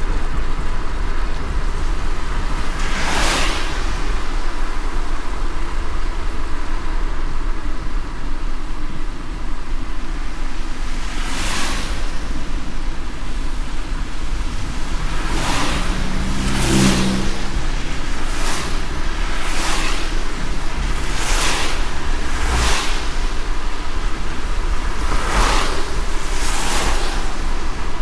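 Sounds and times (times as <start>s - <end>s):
car driving on wet road: 0.0s - 28.0s
brief whooshes: 1.4s - 5.9s, 10.9s - 28.0s.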